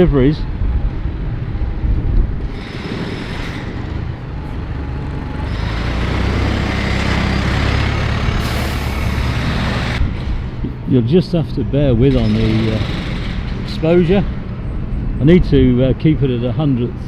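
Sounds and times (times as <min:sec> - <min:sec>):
city street traffic: 0:00.0 - 0:17.0
heavy diesel engine running: 0:00.4 - 0:17.0.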